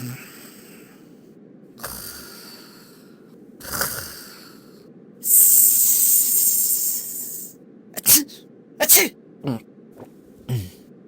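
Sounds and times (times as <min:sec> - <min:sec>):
person hissing through teeth: 0:03.6 - 0:04.4, 0:05.2 - 0:09.1.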